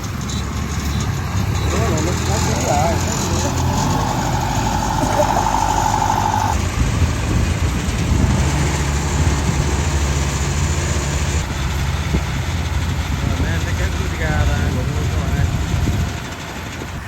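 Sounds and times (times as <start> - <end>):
diesel engine running: 0.0 - 6.7
high whine: 1.2 - 6.6.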